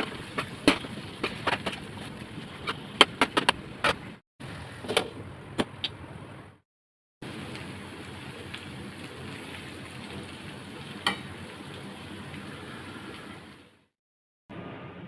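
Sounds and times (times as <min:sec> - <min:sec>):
chicken frying in hot oil: 0:00.0 - 0:02.7, 0:07.2 - 0:13.8.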